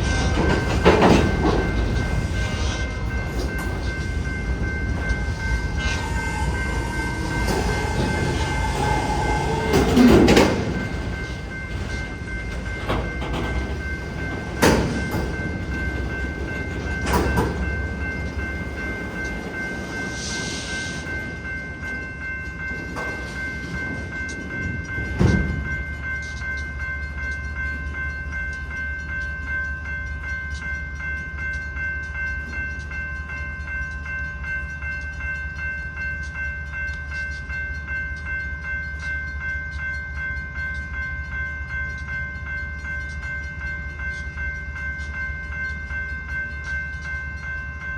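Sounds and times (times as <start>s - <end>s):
metallic bangs from train: 0.0s - 26.1s
freight train rumbling: 0.0s - 47.9s
railroad crossing bell ringing: 0.0s - 47.9s.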